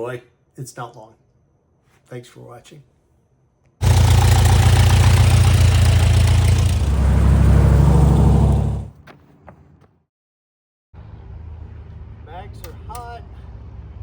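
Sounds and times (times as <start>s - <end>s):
aircraft engine running loud: 3.8s - 8.9s.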